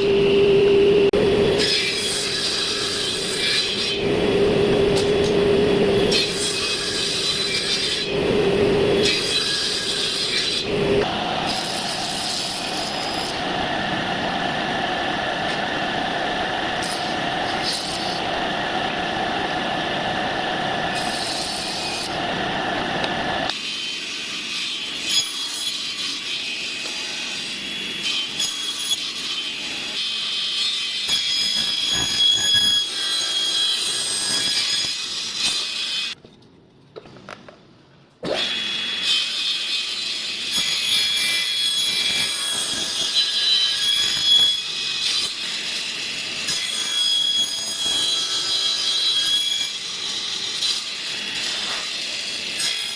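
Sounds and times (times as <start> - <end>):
tool scraping wood: 51.4 - 52.0.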